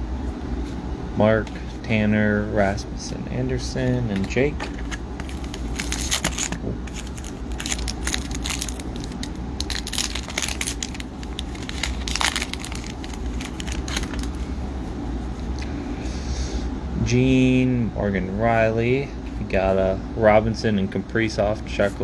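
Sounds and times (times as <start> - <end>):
steady low hum: 0.0 - 22.0
foil wrappers crinkling: 3.9 - 14.6
trading cards clicking: 4.0 - 14.4.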